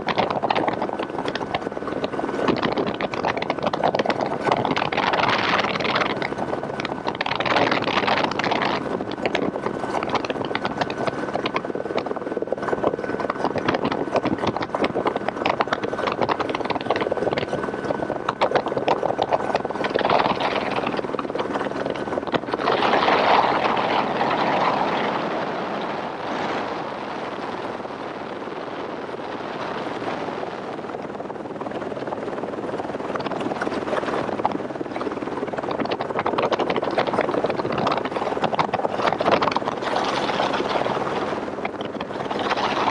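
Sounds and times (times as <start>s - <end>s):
helicopter rotor chopping: 0.0s - 42.9s
wind on microphone: 0.0s - 42.9s.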